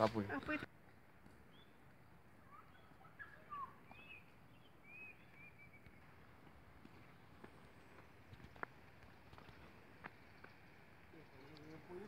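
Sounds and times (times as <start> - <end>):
small birds chirping: 0.3 - 12.0.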